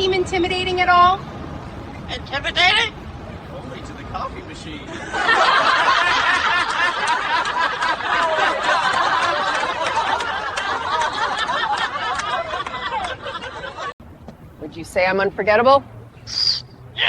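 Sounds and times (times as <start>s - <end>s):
people laughing: 4.9s - 14.0s.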